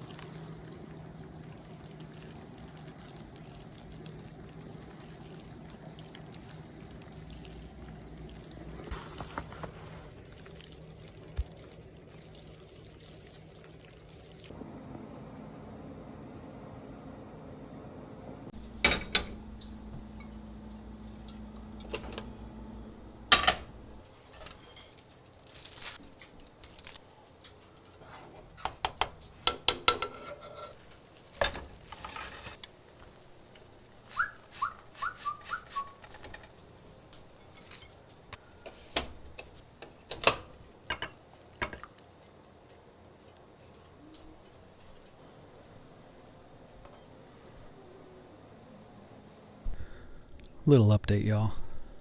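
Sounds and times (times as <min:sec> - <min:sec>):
low steady hum: 0:00.0 - 0:28.0
dishes and utensils clattering: 0:18.6 - 0:20.6, 0:23.3 - 0:25.1, 0:28.7 - 0:32.6, 0:37.2 - 0:45.2
short high squeaks: 0:34.1 - 0:36.0.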